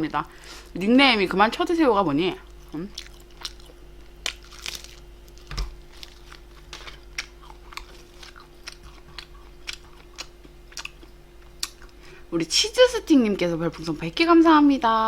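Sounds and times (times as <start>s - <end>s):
low electrical hum: 0.0s - 15.0s
person chewing food: 2.5s - 12.0s.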